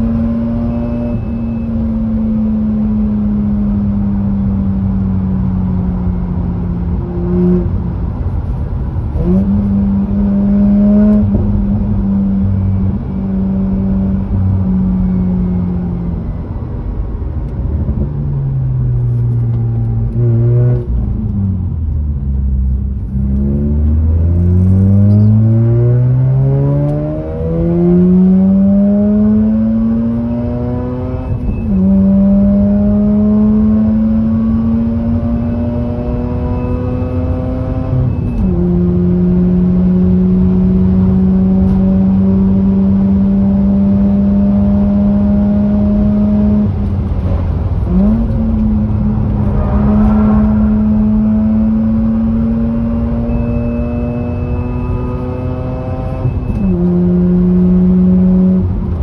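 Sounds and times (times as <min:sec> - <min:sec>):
rotary engine revving: 0:23.6 - 0:59.0.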